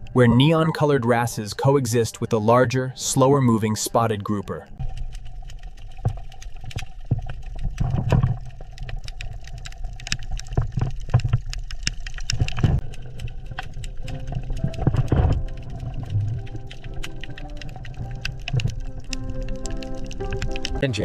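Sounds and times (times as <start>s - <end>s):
low underwater rumble: 4.6s - 20.8s
sharp clicks and crackles: 4.7s - 20.8s.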